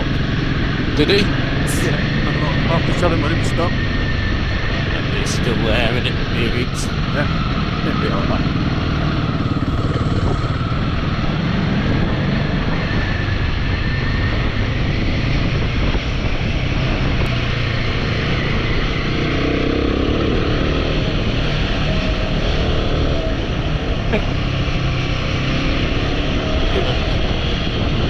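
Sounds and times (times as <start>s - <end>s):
wind and road noise: 8.5s - 28.0s.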